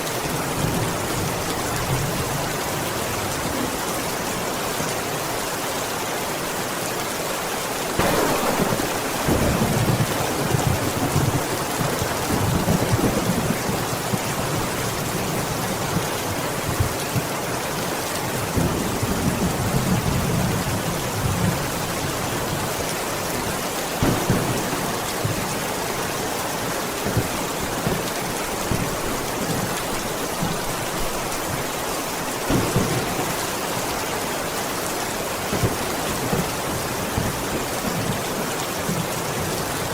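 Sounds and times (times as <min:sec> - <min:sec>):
heavy rain hissing: 0:00.0 - 0:39.9
thunder rumbling: 0:08.0 - 0:16.0, 0:24.0 - 0:31.2, 0:32.4 - 0:34.5.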